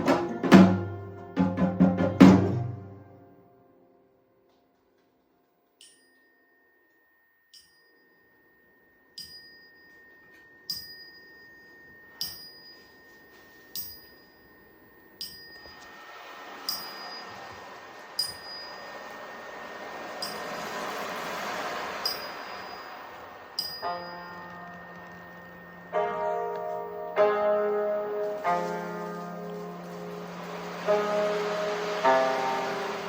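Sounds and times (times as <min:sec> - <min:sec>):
soft hiss: 0:02.8 - 0:33.0
thin steady high tone: 0:05.6 - 0:33.0
small metal chime struck: 0:05.7 - 0:15.9, 0:16.7 - 0:27.4.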